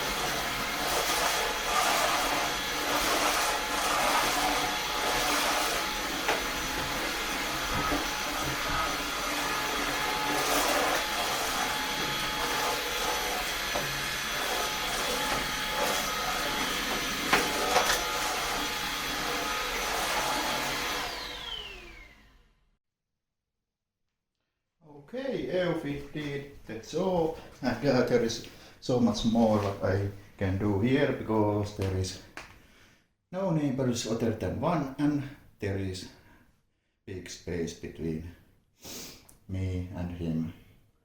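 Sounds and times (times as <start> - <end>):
cordless vacuum running: 0.0 - 22.6.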